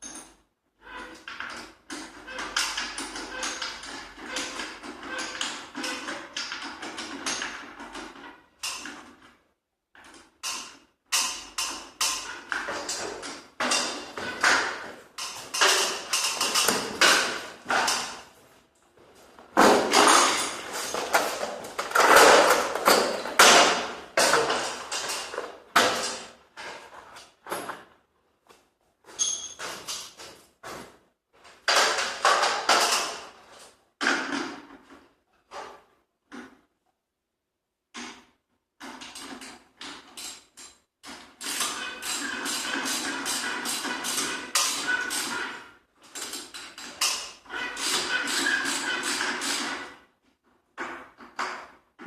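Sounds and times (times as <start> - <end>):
knocks bangs and clatters: 12.2 - 18.3, 19.4 - 27.8.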